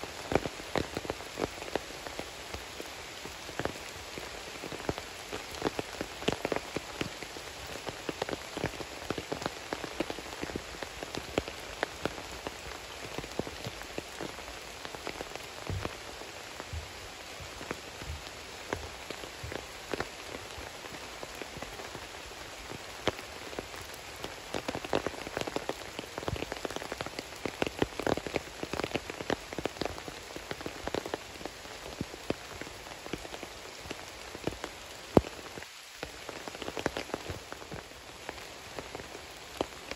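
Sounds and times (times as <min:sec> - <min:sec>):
raindrops clicking on a surface: 0:00.0 - 0:39.9
steady rain: 0:00.0 - 0:39.9
dull low thumps: 0:15.6 - 0:16.0, 0:16.6 - 0:19.6.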